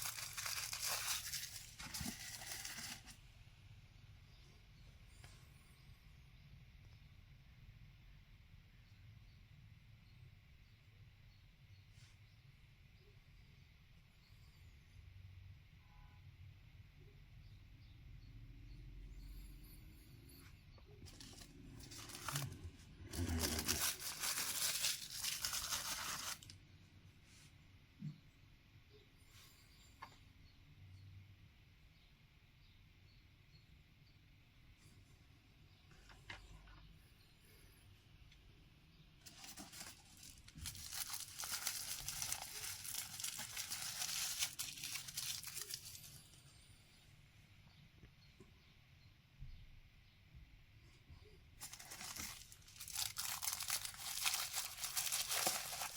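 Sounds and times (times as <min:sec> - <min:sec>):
packaging tearing: 0:00.0 - 0:03.2, 0:21.1 - 0:26.5, 0:39.3 - 0:46.1, 0:51.6 - 0:55.9.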